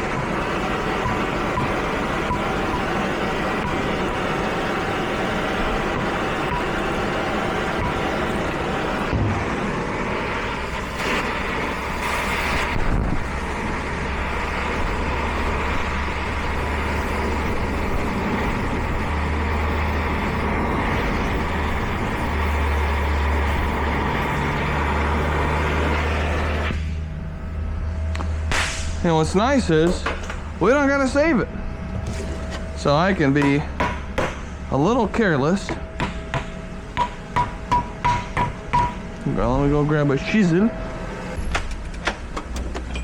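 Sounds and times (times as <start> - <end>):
torch flame rushing: 0.0 - 27.0.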